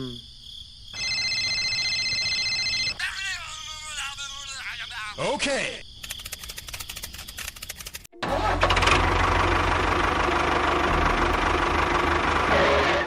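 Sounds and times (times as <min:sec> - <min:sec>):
small engine ticking and humming: 0:08.2 - 0:13.0.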